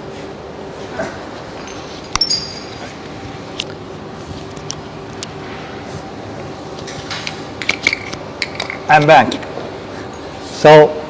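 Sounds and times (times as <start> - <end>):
metallic clink: 1.6 - 2.8.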